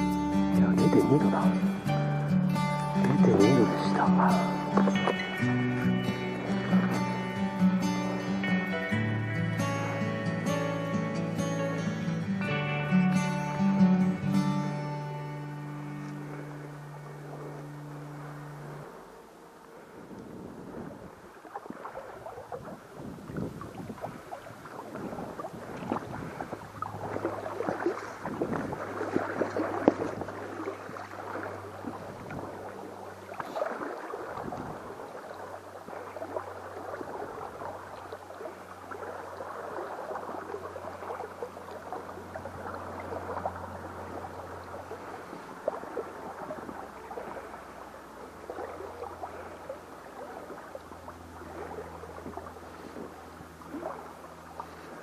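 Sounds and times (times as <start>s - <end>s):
stream rushing over rocks: 0.0s - 10.8s, 21.1s - 49.4s.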